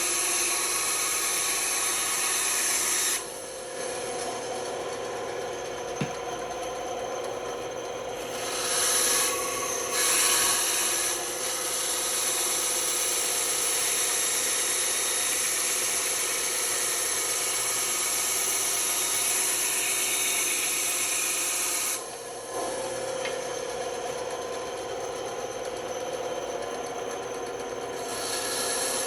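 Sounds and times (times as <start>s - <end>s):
saw blade cutting wood: 0.0s - 5.0s, 8.2s - 23.4s, 27.9s - 29.0s
band saw motor hum: 0.0s - 29.0s.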